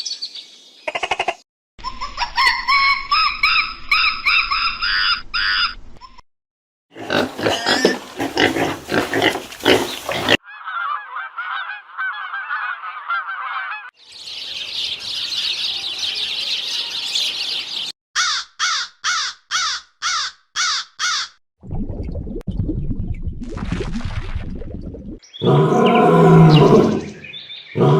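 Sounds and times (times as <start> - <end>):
evenly spaced animal calls: 7.0 - 14.0.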